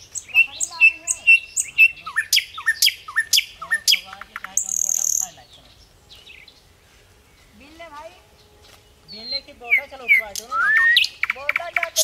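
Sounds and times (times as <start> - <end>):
birds chirping: 0.0 - 12.0
bird calls sweeping up in pitch: 9.1 - 12.0.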